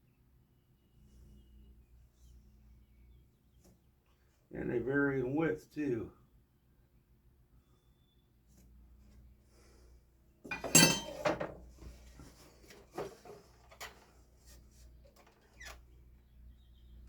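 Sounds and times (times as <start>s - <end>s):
hard objects clattering on workbench: 10.5s - 11.6s.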